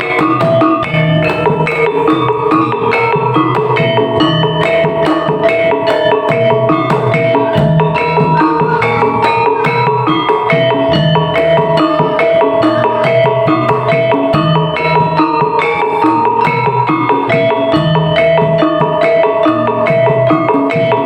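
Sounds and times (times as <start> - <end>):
fast percussion beat: 0.0 - 21.0
low drum: 0.0 - 21.0
ringing metallophone tones: 0.0 - 21.0.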